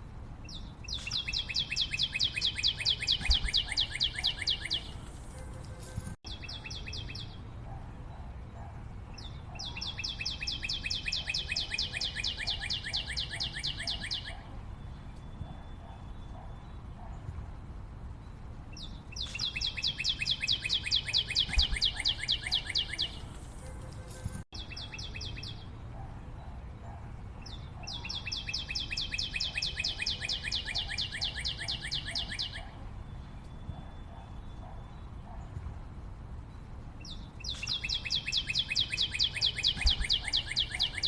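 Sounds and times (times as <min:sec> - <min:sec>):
bird singing fast trills: 0:00.5 - 0:05.0, 0:06.3 - 0:07.6, 0:09.1 - 0:17.1, 0:18.2 - 0:23.3, 0:24.6 - 0:25.8, 0:27.4 - 0:35.4, 0:37.0 - 0:41.0.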